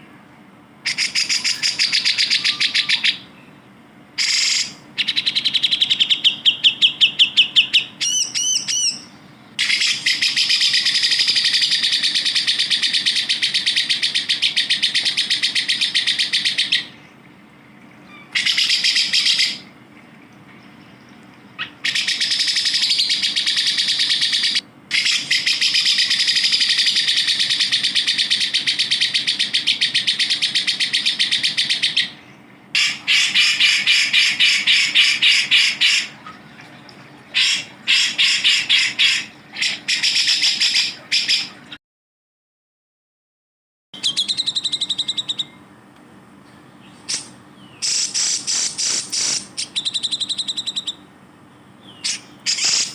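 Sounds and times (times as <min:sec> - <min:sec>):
bird looping whistles: 0:00.8 - 0:03.3, 0:04.2 - 0:17.0, 0:18.3 - 0:19.7, 0:21.6 - 0:32.2, 0:32.8 - 0:36.1, 0:37.4 - 0:41.5, 0:44.0 - 0:45.6, 0:47.1 - 0:51.1, 0:51.9 - 0:52.9
bulbul buzzing trills: 0:52.0 - 0:52.9.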